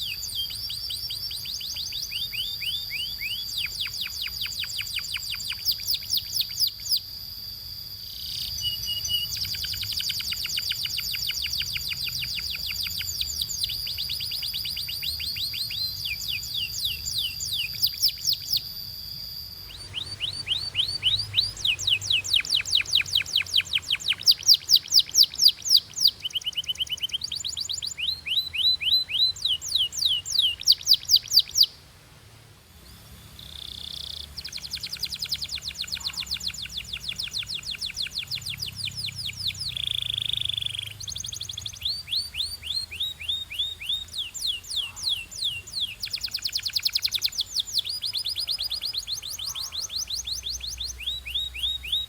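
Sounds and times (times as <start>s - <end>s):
canary singing trills: 0.0s - 31.8s, 32.8s - 52.0s
high steady held tone: 2.4s - 26.8s.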